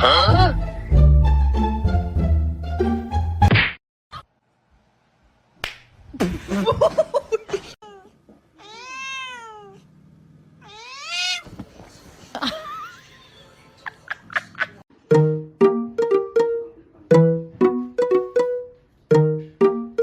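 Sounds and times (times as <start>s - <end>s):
cat meowing: 8.6s - 9.8s, 10.6s - 11.5s.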